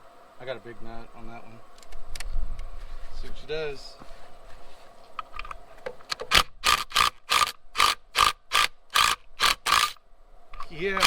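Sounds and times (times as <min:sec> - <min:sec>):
ratchet wrench rasping: 0:06.3 - 0:10.0.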